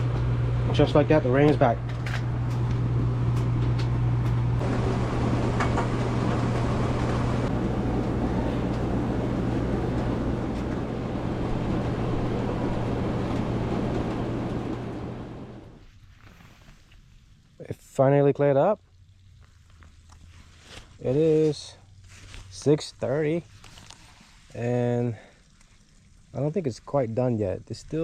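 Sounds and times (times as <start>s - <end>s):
low steady hum: 0.0s - 28.0s
rain falling steadily: 4.6s - 16.0s, 17.3s - 28.0s.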